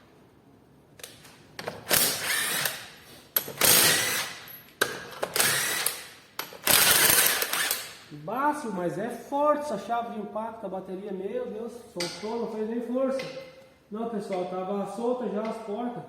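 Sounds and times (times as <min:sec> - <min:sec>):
impact wrench bursts: 0:01.7 - 0:08.1.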